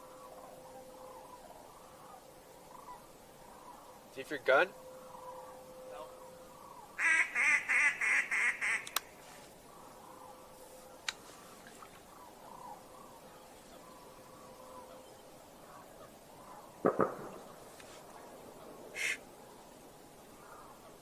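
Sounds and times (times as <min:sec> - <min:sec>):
duck quacks: 0:07.0 - 0:08.9, 0:19.0 - 0:19.2.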